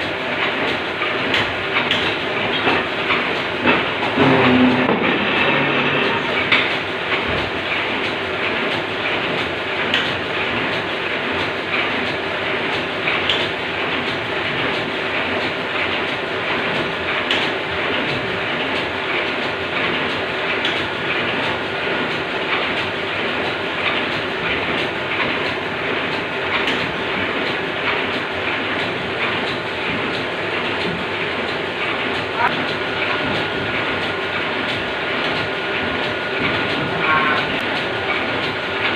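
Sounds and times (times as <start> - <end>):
machinery clattering: 0.0 - 38.9
constant hum: 17.3 - 38.9.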